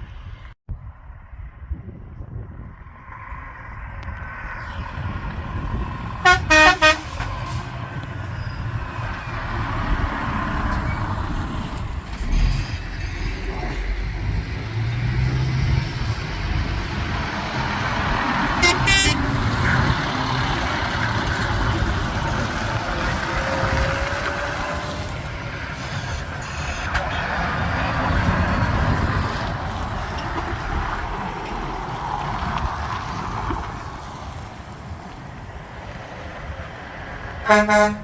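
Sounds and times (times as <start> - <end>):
truck engines rumbling: 0.0 - 38.0
truck horn toots: 6.2 - 7.7, 18.5 - 20.1, 37.4 - 38.0.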